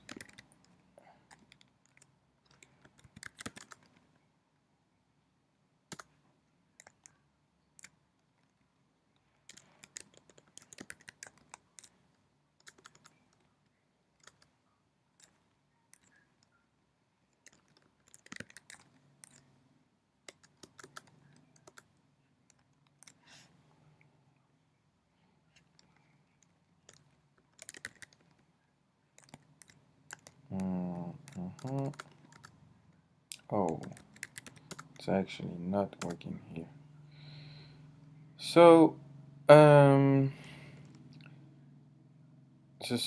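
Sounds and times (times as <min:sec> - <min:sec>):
keyboard typing: 0:00.0 - 0:04.0, 0:05.9 - 0:06.1, 0:06.8 - 0:07.2, 0:09.4 - 0:12.0, 0:12.6 - 0:13.5, 0:14.2 - 0:14.6, 0:15.2 - 0:16.6, 0:17.3 - 0:19.5, 0:20.2 - 0:21.9, 0:25.6 - 0:28.5, 0:29.2 - 0:32.6, 0:33.3 - 0:35.1, 0:35.9 - 0:36.3.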